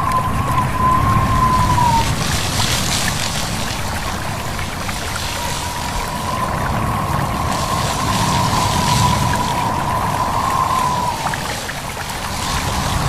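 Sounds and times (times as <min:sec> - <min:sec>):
wavering whistle-like tone: 0:00.0 - 0:02.3, 0:05.0 - 0:11.7
flowing stream: 0:00.0 - 0:13.0
wind: 0:00.0 - 0:13.0.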